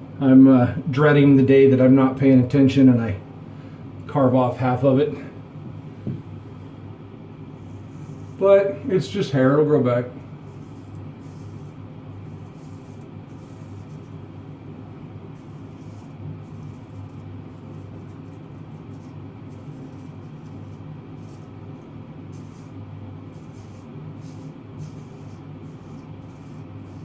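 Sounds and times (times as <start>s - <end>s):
steady low hum: 0.0s - 27.0s
straight razor scraping stubble: 10.3s - 14.5s, 15.2s - 27.0s.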